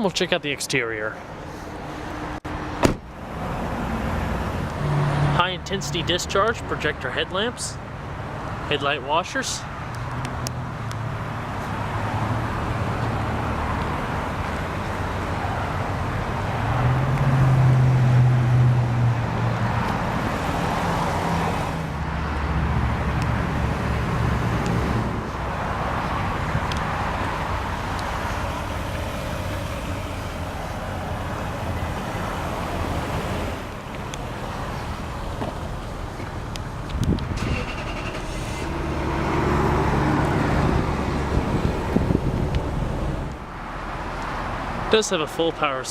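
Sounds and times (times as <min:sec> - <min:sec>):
car engine idling: 0:26.3 - 0:38.7.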